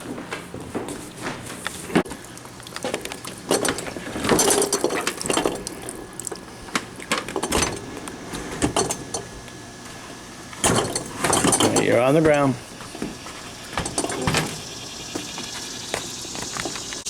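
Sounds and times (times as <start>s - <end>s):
refrigerator knocks and rattles: 3.5s - 6.1s, 7.1s - 9.4s, 10.6s - 16.8s.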